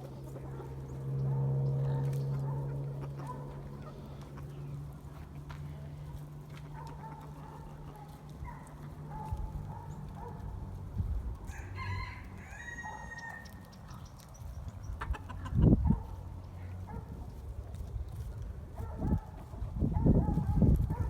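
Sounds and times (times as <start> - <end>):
chickens clucking: 0.0 - 10.4, 12.7 - 20.4
rooster crowing: 11.4 - 13.6.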